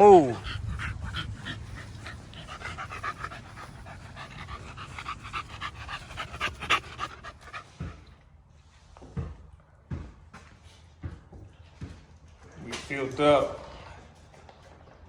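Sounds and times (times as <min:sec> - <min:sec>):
dog panting: 0:00.0 - 0:08.2.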